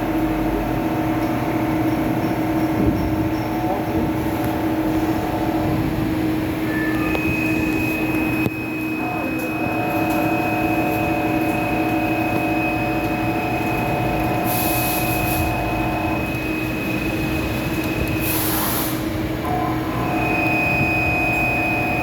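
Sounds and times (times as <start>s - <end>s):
lathe machine whine: 0.0s - 22.0s
hissing spray bursts: 18.2s - 19.1s.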